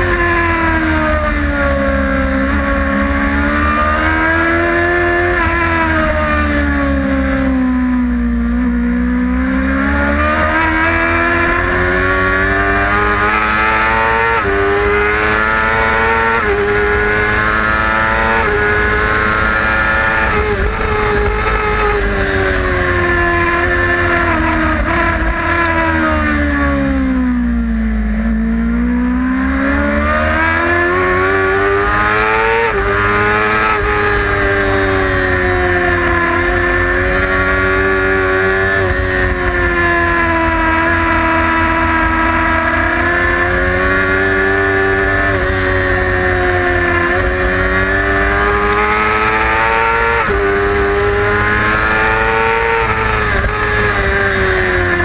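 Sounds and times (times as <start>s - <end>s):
motorcycle engine revving high: 0.0s - 55.0s.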